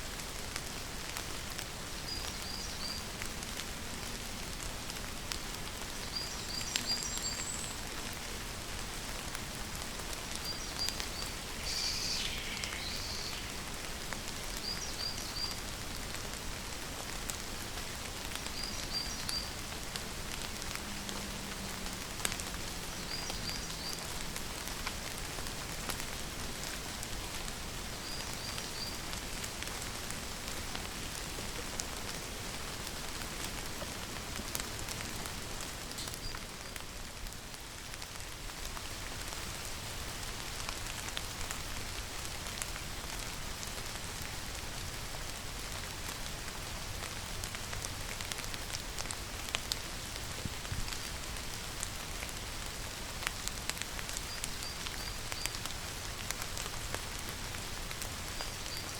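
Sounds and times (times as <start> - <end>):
steady rain falling: 0.0 - 58.9
bird high call: 10.8 - 13.8.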